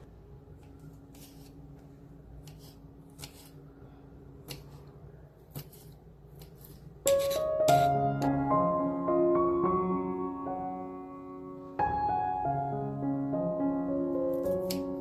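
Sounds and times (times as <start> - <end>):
piano music: 7.1 - 15.0.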